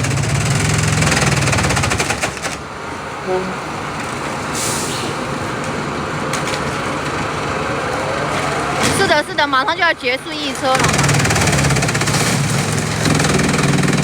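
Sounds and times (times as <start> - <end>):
short hiss: 4.5 - 5.7
chipping machine rattling: 10.4 - 14.0.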